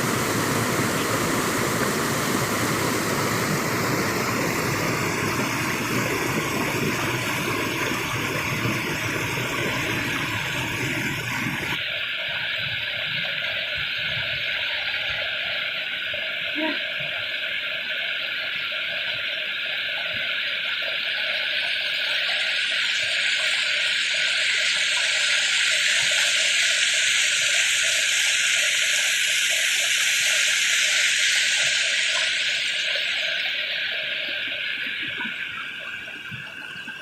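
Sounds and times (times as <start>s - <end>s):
rushing stream water: 0.0s - 11.8s.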